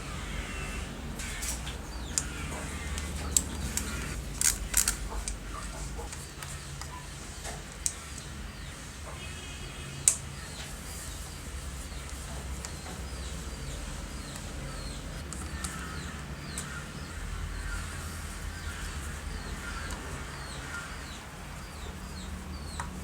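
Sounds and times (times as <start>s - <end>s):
small birds chirping: 0.0s - 23.0s
steady low hum: 0.0s - 23.0s
lower wavering bird calls: 10.4s - 23.0s.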